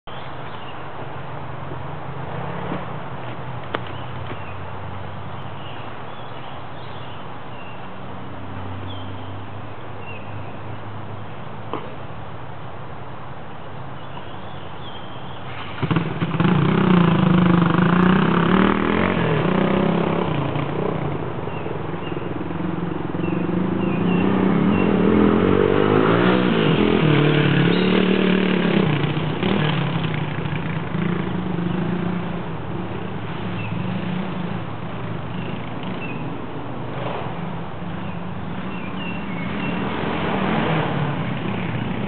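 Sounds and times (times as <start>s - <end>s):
dirt bike engines revving: 14.9s - 42.0s.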